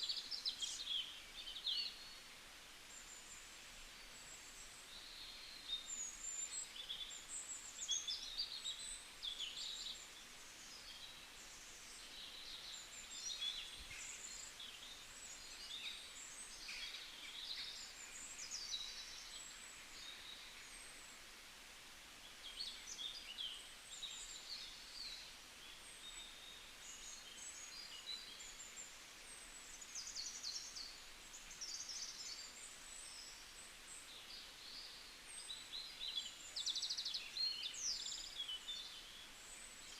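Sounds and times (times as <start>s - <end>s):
faint steady hiss: 0.0s - 39.9s
birds chirping and twittering: 2.9s - 21.2s, 22.2s - 39.9s.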